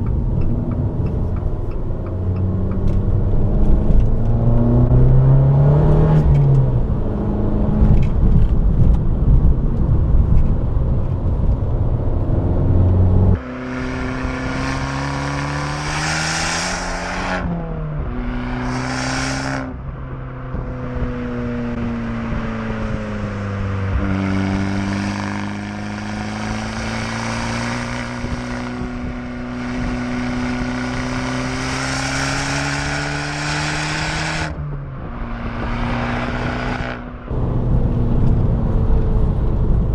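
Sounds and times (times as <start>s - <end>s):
car engine and exhaust driving: 0.0s - 39.9s.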